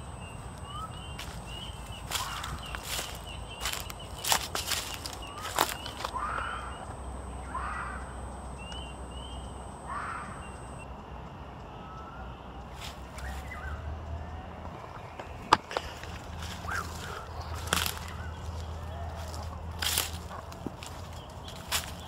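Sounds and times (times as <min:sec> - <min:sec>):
short arching animal calls: 0:02.0 - 0:10.8, 0:16.5 - 0:19.4.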